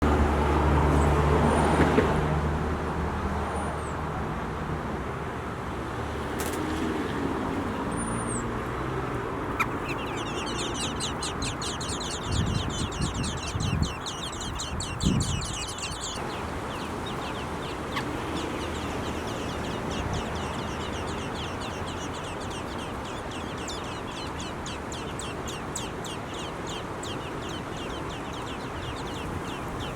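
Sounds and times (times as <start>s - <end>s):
nestling birds chirping: 7.5s - 29.9s.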